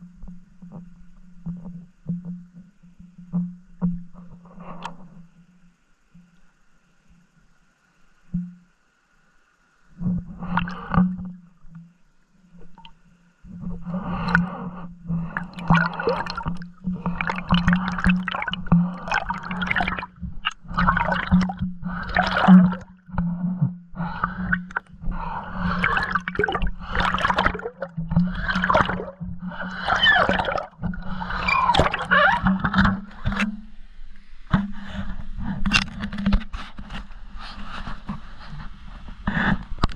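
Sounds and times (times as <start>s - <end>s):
steady low hum: 5.0s - 36.3s
water gurgling and bubbling: 10.0s - 11.6s, 12.5s - 33.7s.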